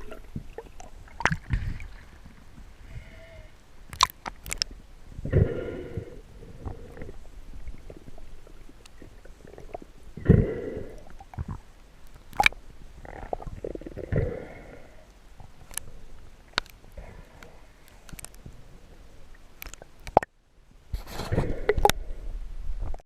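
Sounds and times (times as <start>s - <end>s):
underwater snorkel breathing: 1.4s - 3.6s, 5.3s - 7.3s, 10.2s - 11.2s, 13.7s - 15.2s, 17.0s - 18.1s.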